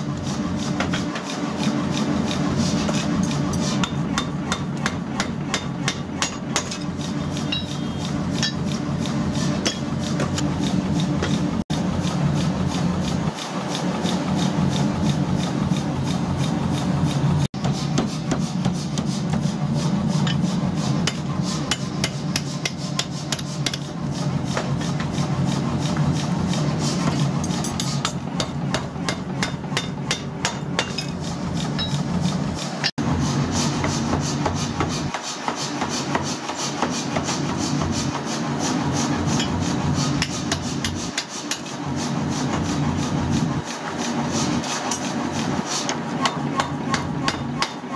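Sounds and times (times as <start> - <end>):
hammer striking metal: 2.9 - 8.8, 9.4 - 10.4, 27.4 - 32.1, 45.9 - 47.9.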